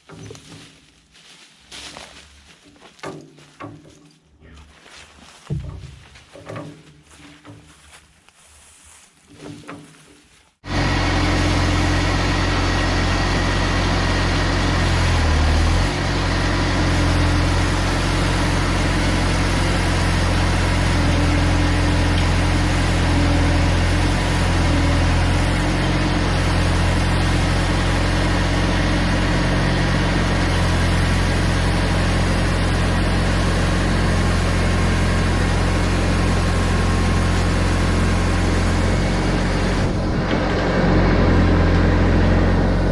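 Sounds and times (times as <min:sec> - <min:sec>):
diesel engine running loud: 0:10.6 - 0:42.9.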